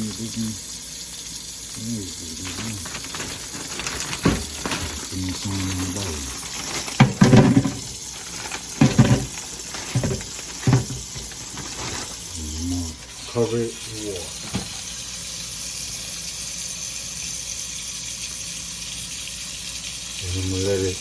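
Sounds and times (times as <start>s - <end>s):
tap water running into sink: 0.0s - 21.0s
handling rustling and clunks: 2.3s - 12.4s, 14.4s - 14.8s.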